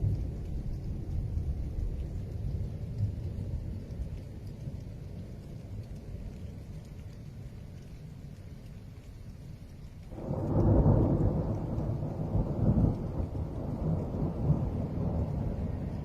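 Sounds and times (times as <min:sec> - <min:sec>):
thunder rumbling: 0:10.0 - 0:16.0.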